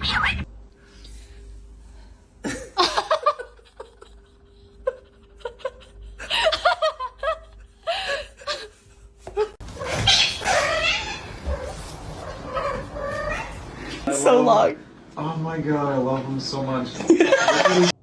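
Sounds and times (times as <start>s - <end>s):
person laughing: 2.4s - 9.6s.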